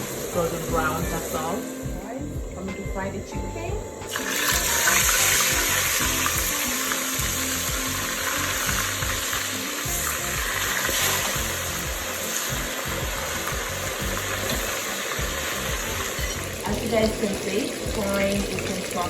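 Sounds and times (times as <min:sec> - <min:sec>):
chicken deep-frying in oil: 0:04.1 - 0:19.0.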